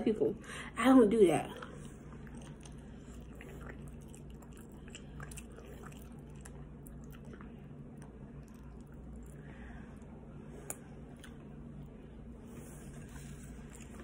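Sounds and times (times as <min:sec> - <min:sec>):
steady low hum: 0:00.0 - 0:14.0
person chewing food: 0:01.5 - 0:14.0.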